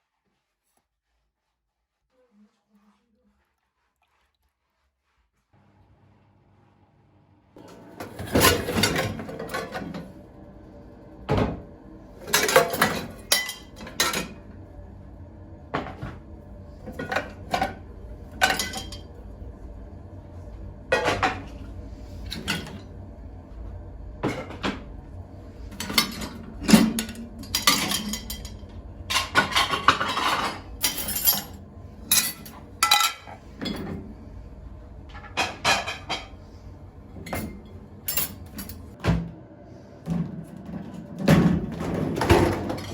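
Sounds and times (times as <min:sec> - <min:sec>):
dishes and cutlery clinking: 0:12.3 - 0:14.3, 0:18.4 - 0:19.1, 0:25.8 - 0:34.0, 0:35.2 - 0:36.4.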